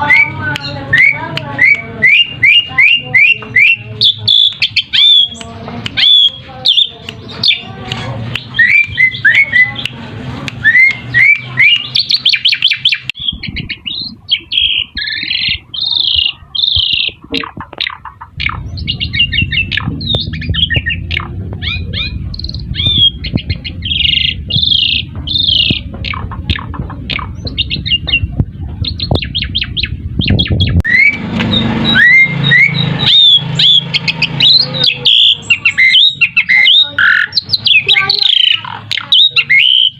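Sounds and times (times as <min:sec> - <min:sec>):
starlings calling: 0:00.0 - 0:10.0, 0:10.6 - 0:39.9
low rumble: 0:17.9 - 0:34.8.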